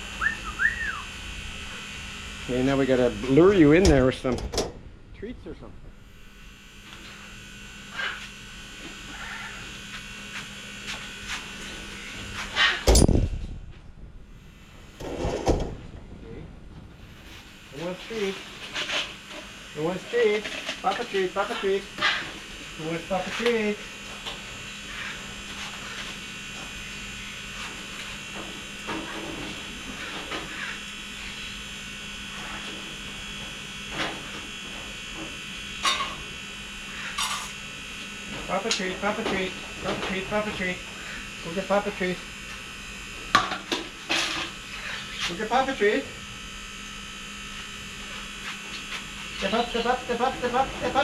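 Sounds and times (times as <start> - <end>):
steady electric buzz: 0.0 - 51.0
steady low hum: 0.0 - 51.0.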